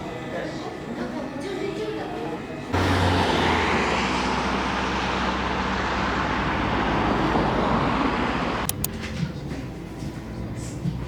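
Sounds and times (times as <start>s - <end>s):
vehicle road noise rumble: 2.7s - 11.0s.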